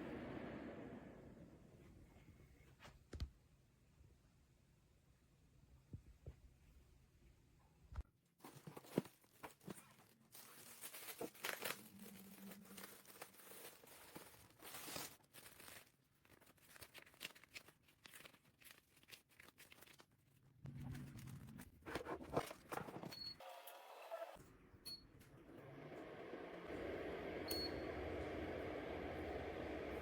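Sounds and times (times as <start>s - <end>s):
rustling and crinkling: 8.0s - 23.2s.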